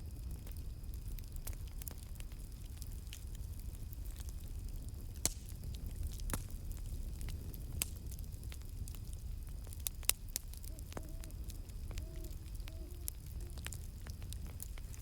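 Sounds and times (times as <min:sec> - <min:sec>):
campfire rumble: 0:00.0 - 0:15.0
fire crackles and pops: 0:00.0 - 0:15.0
faint owl hoots: 0:10.6 - 0:14.1.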